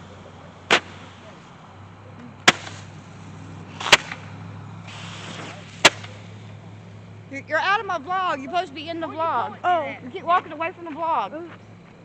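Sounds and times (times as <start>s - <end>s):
firework pops with hiss: 0.6s - 1.6s, 2.2s - 6.5s.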